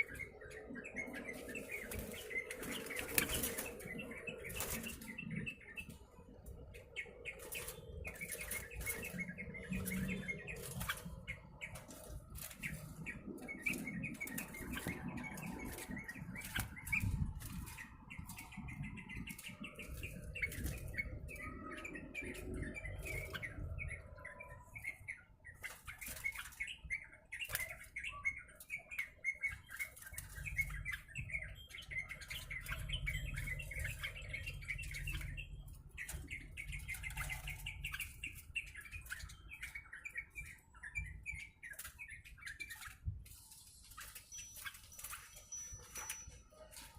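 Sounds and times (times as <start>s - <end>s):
bird chirps: 0.0s - 46.9s
bird wings flapping: 1.2s - 5.3s, 7.3s - 23.5s.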